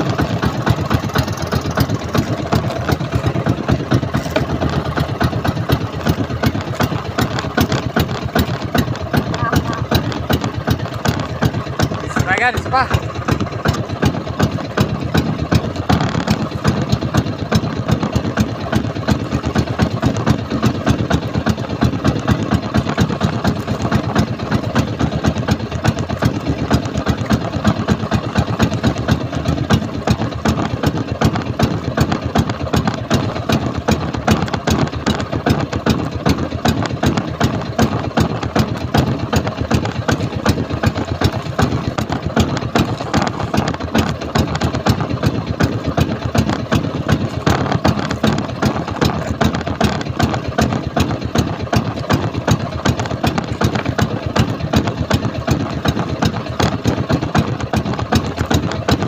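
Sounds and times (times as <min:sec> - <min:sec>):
boat engine chugging: 0:00.0 - 0:59.0.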